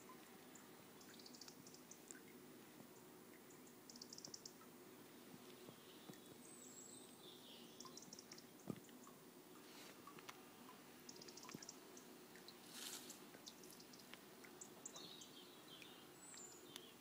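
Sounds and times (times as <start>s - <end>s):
bird chirps: 1.0s - 2.1s, 3.5s - 4.7s, 5.6s - 9.1s, 10.6s - 12.1s, 13.0s - 17.0s.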